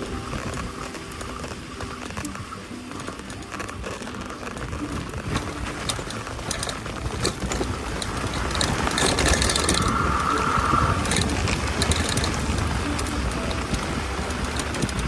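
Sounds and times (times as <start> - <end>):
bike rattling and clicking: 0.0 - 15.0
tyres crunching on gravel: 0.0 - 15.0
high squeal: 8.2 - 14.8.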